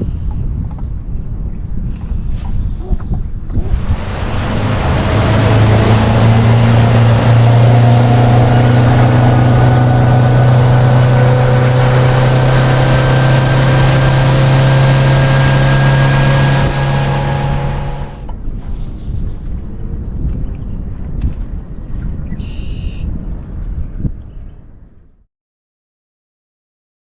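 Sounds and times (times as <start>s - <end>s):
rush of wind and water: 0.0s - 25.1s
outboard motor droning: 3.5s - 18.3s.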